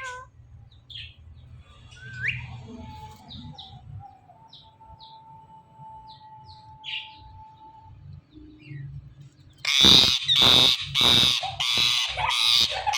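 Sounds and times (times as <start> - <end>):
parakeet chirping: 9.6 - 12.9
parakeet screeching: 9.6 - 12.9.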